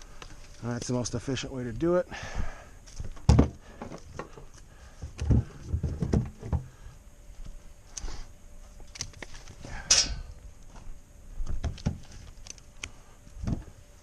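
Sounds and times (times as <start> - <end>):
logs knocking and thudding: 3.0 - 4.4, 5.0 - 6.8, 13.4 - 13.7.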